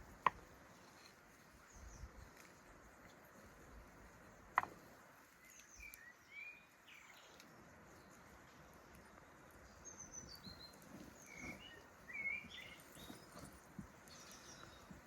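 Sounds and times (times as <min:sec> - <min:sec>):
faint bird chirps: 0:05.3 - 0:15.0.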